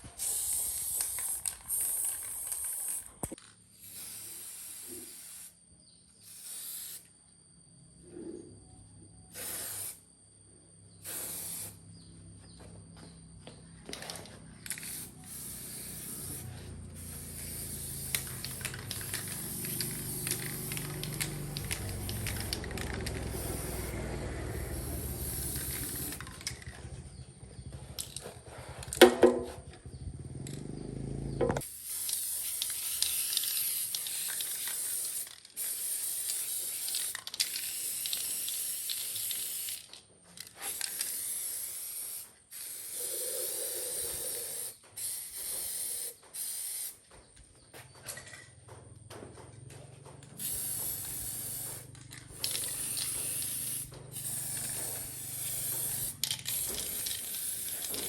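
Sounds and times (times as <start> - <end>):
high spraying hiss: 0.0 - 5.6, 6.2 - 7.1, 9.3 - 10.0, 11.0 - 12.0, 14.8 - 26.2, 40.6 - 47.0, 50.4 - 58.0.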